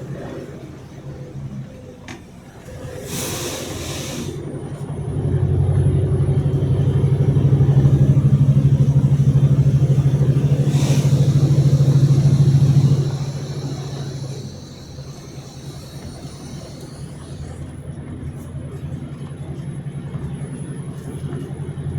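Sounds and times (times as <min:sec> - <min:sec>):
car engine running: 0:04.8 - 0:21.9.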